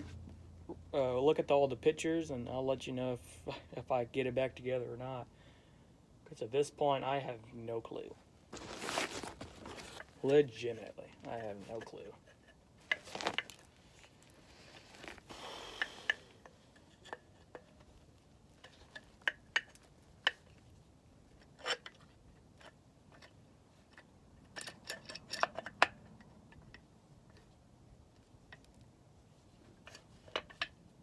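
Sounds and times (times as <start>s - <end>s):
short rustle: 8.5s - 10.5s, 12.8s - 15.4s.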